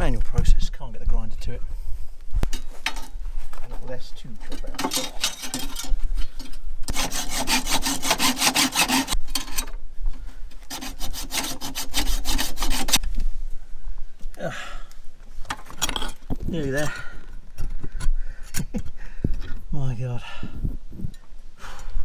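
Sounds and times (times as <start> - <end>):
hacksaw cutting through metal bolt: 6.9 - 9.7, 10.7 - 13.0.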